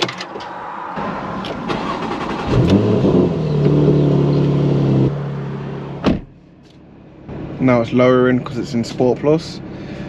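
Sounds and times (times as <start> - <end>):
car engine revving and idling: 1.0 - 10.0
starter whirr: 1.7 - 3.1.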